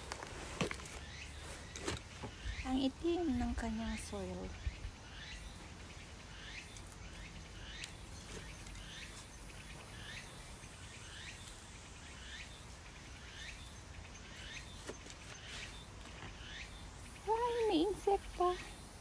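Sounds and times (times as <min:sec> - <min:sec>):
trowel handling soil: 0:00.0 - 0:02.2
bird chirping: 0:00.0 - 0:19.0.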